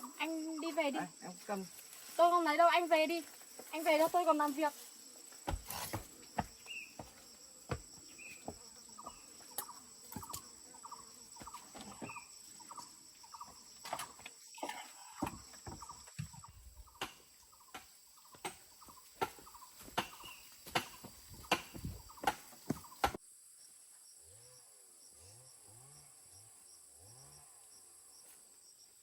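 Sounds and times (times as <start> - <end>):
sharp knocks and taps: 19.2 - 23.2.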